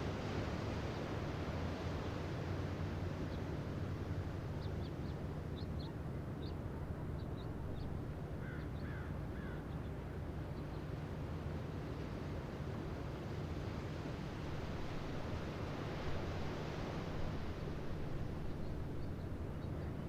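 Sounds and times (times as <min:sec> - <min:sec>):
low rumble with hiss: 0:00.0 - 0:20.0
falling bird calls: 0:08.4 - 0:09.8.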